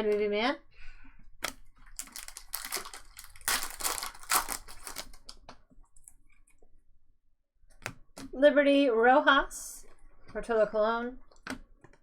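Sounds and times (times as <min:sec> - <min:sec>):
wrappers crinkling and tearing: 0:01.8 - 0:05.4.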